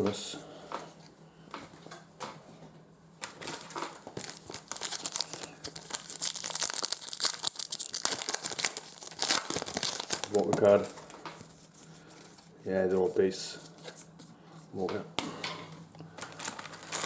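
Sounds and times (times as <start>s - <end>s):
wrapper crinkling and tearing: 3.2s - 11.6s, 16.2s - 17.0s.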